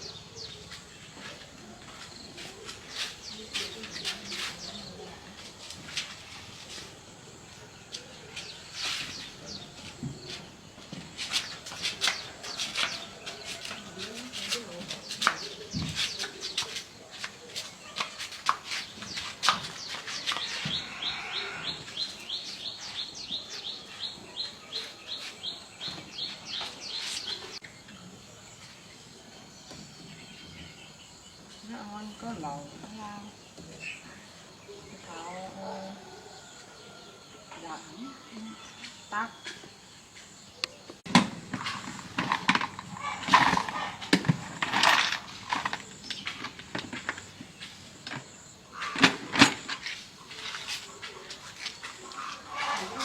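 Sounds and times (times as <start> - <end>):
irregular knocks and clatters: 41.0 - 52.3.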